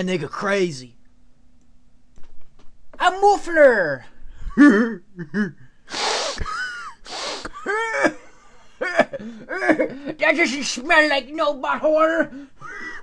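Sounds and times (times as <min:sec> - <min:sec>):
person sniffing hard: 0:05.9 - 0:07.6.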